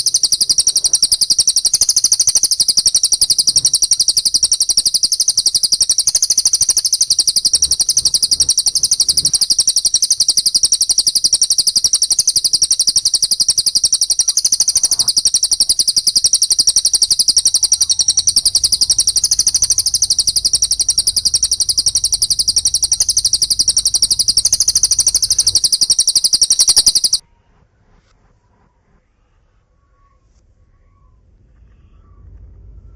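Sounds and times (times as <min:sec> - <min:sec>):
songbird chirping rapidly: 0:00.0 - 0:27.2.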